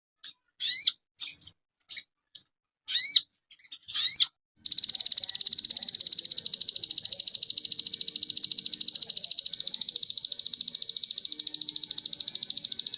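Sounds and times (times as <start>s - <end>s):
high bird chirps: 0.2s - 12.9s
fast bird trill: 3.8s - 12.9s.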